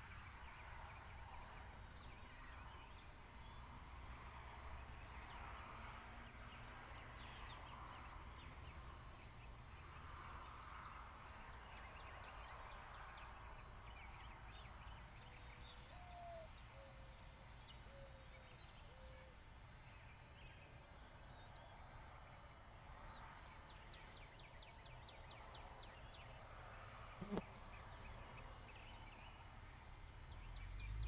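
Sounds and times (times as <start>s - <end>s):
low bird cooing call: 15.8s - 17.1s
small birds chirping: 27.2s - 31.0s.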